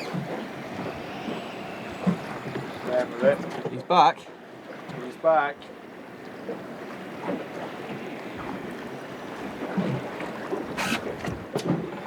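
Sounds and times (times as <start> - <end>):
wind on microphone: 0.0 - 3.0
water slapping boat hull: 0.0 - 12.0.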